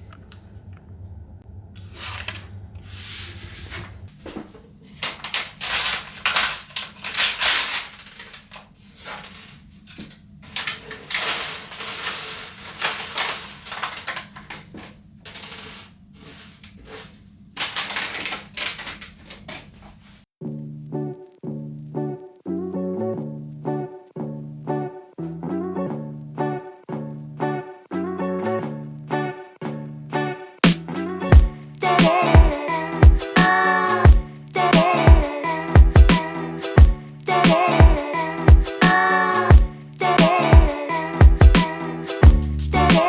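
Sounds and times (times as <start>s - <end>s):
plastic bags rustling: 1.8s - 20.3s
plastic bricks clattering: 5.0s - 19.7s.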